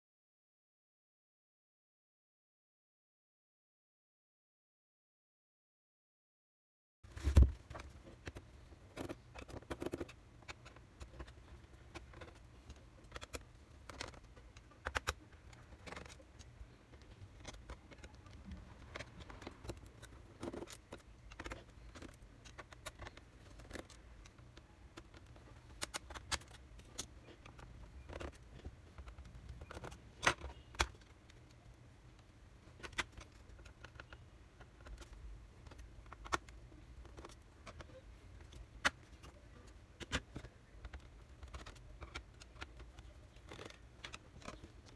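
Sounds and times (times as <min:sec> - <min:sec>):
tools clicking against laptop casing: 0:07.3 - 0:31.4, 0:40.0 - 0:44.9.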